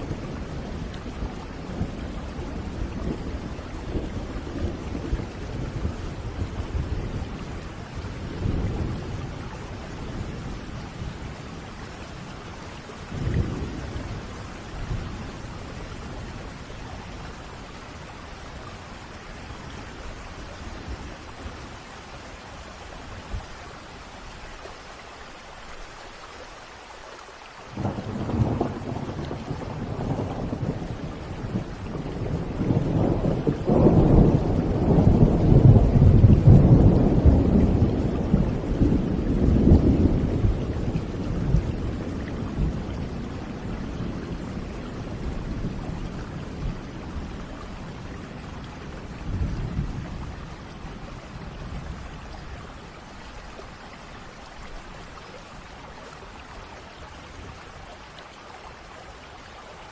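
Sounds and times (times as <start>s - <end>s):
steady rain: 0.0s - 59.9s
rolling thunderclap: 27.8s - 52.5s.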